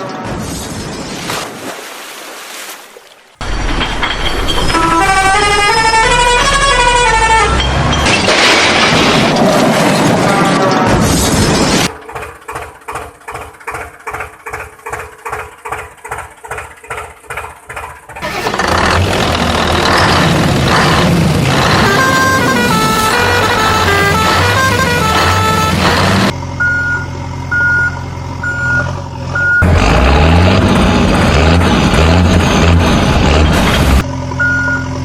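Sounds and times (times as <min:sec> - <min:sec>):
noisy cartoon vehicle sound: 0:03.4 - 0:35.0
horn-like beeping: 0:04.6 - 0:08.0, 0:21.5 - 0:29.7.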